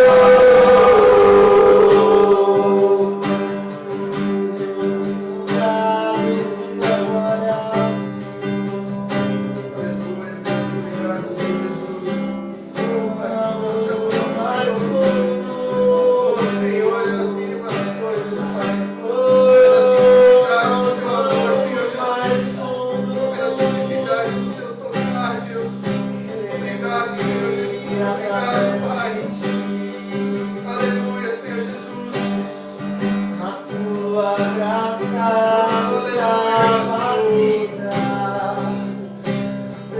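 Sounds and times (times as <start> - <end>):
people singing a worship song: 0.0 - 8.3, 9.7 - 24.4, 33.4 - 39.1
acoustic guitar strumming: 0.0 - 39.9.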